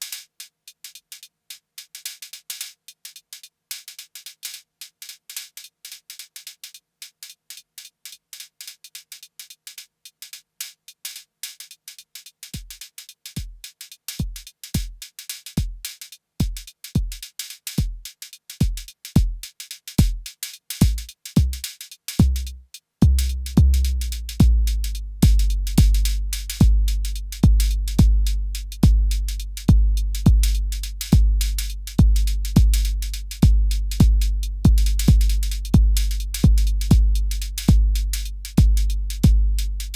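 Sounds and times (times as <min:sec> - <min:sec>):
drum machine high ticks: 0:11.1 - 0:39.9
loud low kick drum: 0:14.2 - 0:15.0, 0:15.6 - 0:15.8, 0:16.4 - 0:17.2, 0:17.8 - 0:18.0, 0:18.6 - 0:19.4, 0:20.0 - 0:39.9
low drum with falling pitch: 0:22.2 - 0:30.6.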